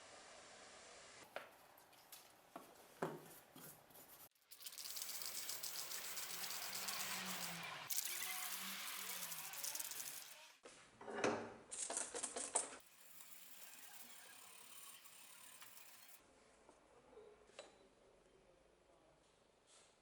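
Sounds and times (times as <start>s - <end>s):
metal scrape: 4.6s - 10.6s, 12.8s - 16.2s.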